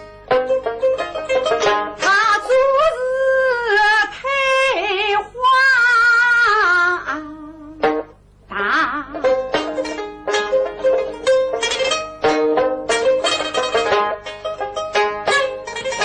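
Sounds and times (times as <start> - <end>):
plucked string accompaniment: 0.0 - 5.0, 6.4 - 16.0
person singing long wavering notes: 8.5 - 10.0.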